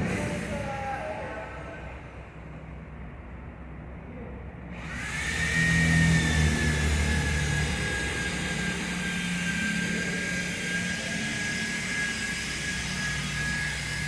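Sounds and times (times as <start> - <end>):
low mechanical hum: 0.0 - 14.0
machine whine falling in pitch: 4.7 - 14.0.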